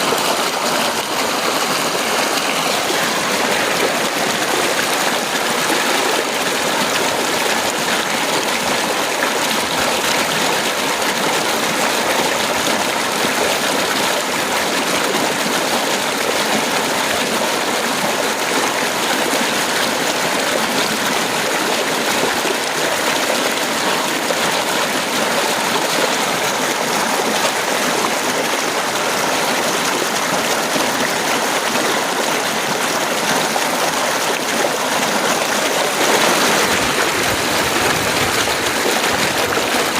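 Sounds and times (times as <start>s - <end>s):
heavy rain falling: 34.7s - 39.9s.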